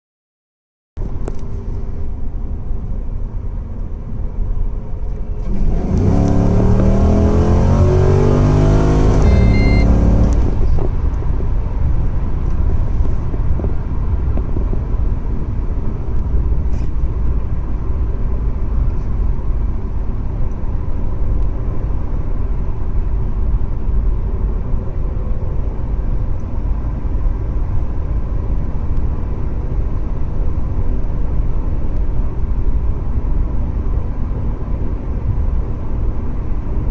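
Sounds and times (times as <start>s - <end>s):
car engine accelerating: 4.2s - 19.0s.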